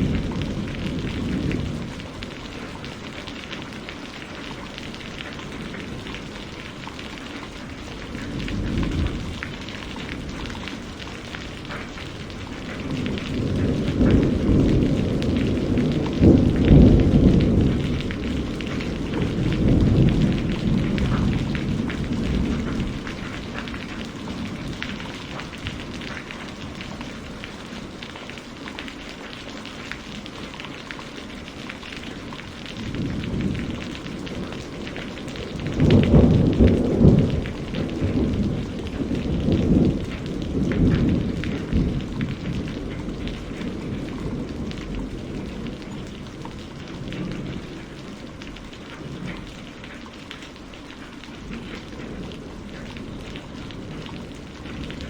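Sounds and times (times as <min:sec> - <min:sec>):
thunder rolling: 0:00.0 - 0:03.8, 0:04.5 - 0:27.5, 0:32.6 - 0:48.0
steady rain: 0:00.0 - 0:55.0.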